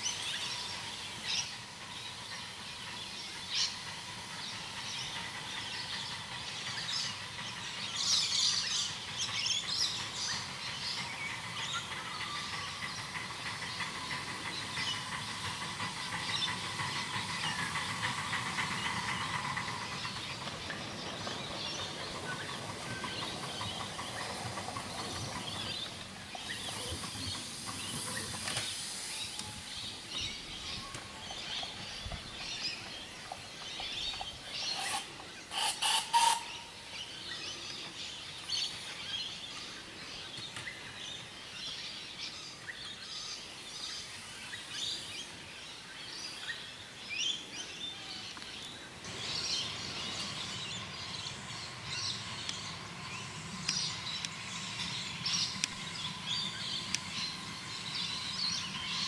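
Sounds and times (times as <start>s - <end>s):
outdoor background noise: 0.0s - 59.0s
birds chirping and calling: 3.5s - 41.8s.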